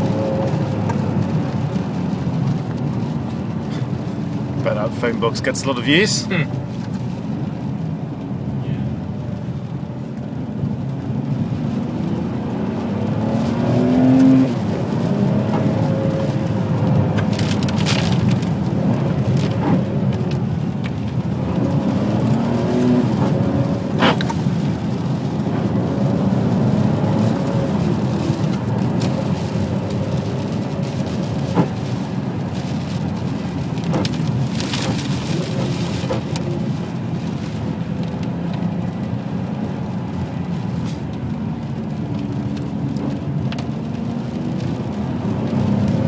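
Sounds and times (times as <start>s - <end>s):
car engine revving: 10.8s - 40.7s.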